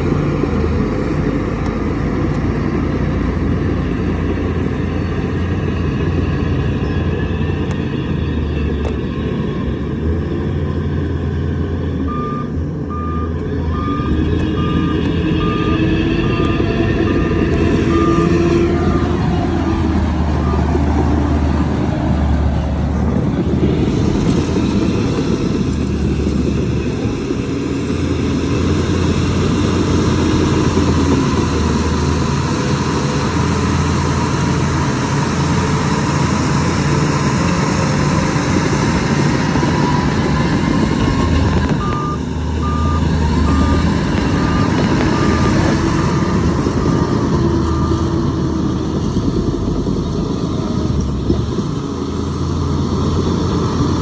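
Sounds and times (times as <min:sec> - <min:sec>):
diesel engine running: 0:00.0 - 0:54.0
reversing alarm beeping: 0:12.0 - 0:21.6, 0:39.4 - 0:46.4.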